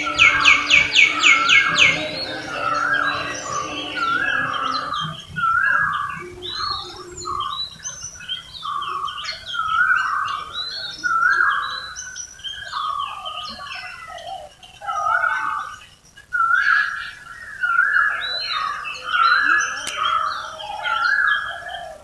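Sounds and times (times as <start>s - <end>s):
bright bird note: 0.0s - 5.2s
birds chirping and calling: 0.0s - 7.6s.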